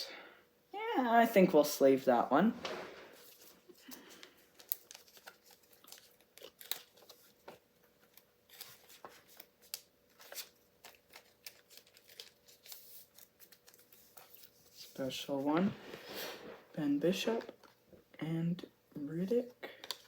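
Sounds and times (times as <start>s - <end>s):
trading cards clicking and rustling: 3.2s - 14.9s.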